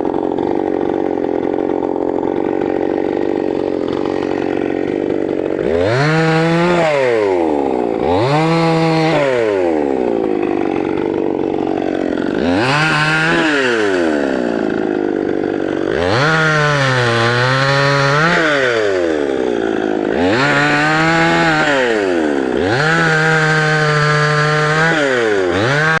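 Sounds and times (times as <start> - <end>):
rasp of cutting: 2.4 - 26.0.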